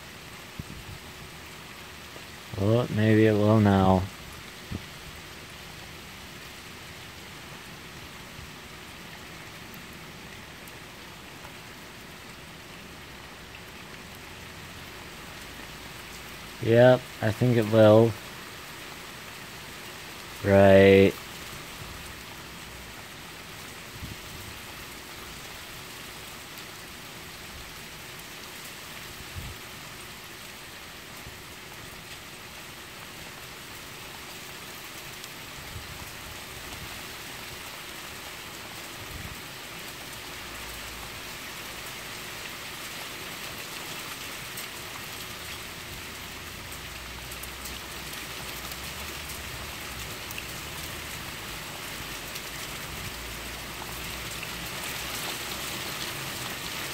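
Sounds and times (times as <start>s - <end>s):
rain falling: 0.0s - 56.9s.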